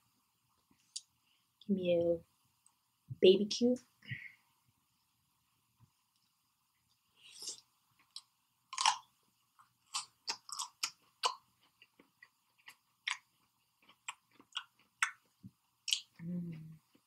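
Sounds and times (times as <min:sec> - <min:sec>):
person chewing: 0:07.2 - 0:16.2.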